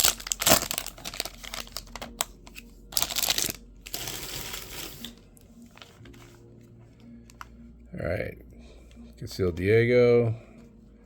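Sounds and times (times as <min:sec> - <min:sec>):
card pack wrapper crinkling: 0:00.0 - 0:05.2
cards being handled: 0:00.0 - 0:07.5.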